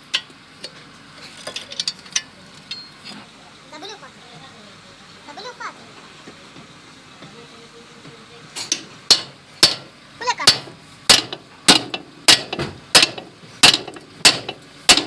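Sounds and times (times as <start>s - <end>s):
hammer striking metal: 8.7s - 15.0s.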